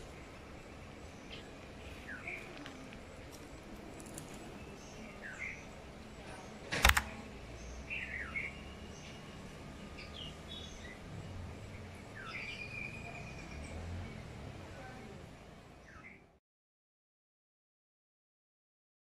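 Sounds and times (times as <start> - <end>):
low background noise: 0.0 - 16.4
small birds chirping: 0.0 - 16.4
sharp click: 6.7 - 7.2.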